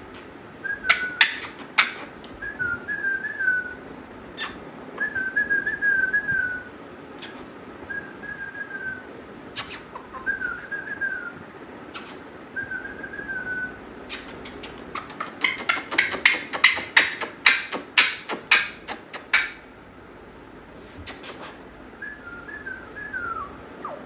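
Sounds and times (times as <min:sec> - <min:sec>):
parrot wavering whistles: 0:00.0 - 0:03.8, 0:04.4 - 0:09.0, 0:09.6 - 0:19.6, 0:21.0 - 0:24.0
parrot sharp clicks: 0:00.9 - 0:02.1, 0:14.1 - 0:19.6.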